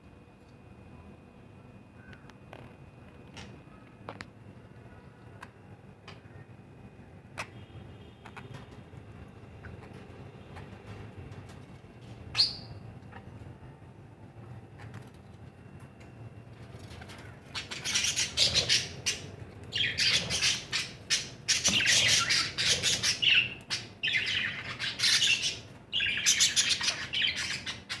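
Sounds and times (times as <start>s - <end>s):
parrots calling harshly: 17.6s - 28.0s.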